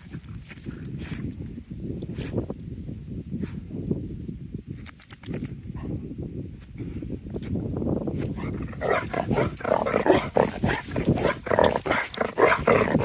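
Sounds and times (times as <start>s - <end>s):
dog making breathy vocal sounds: 8.4s - 13.0s.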